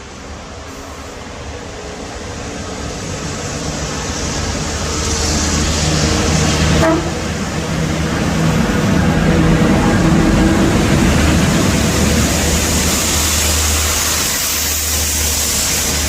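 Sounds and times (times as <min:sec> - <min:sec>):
hiss: 0:00.0 - 0:06.8, 0:10.8 - 0:16.0
locomotives approaching: 0:00.2 - 0:16.0.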